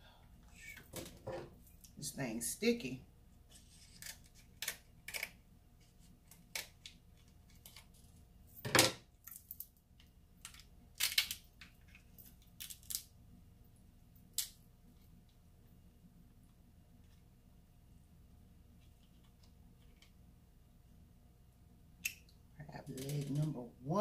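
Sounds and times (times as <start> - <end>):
crab shells cracking: 3.9 - 5.4, 10.4 - 13.1.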